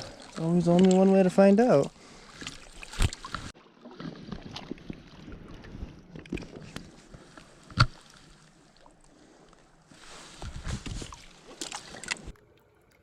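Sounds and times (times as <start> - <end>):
handling knocks and rustles: 10.0 - 12.3.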